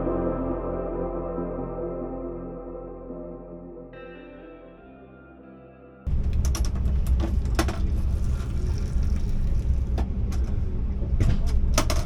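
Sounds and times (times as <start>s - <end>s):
soft ambient music: 0.0s - 6.8s
rattles and clanks: 6.1s - 12.0s
train rumbling: 6.1s - 12.0s.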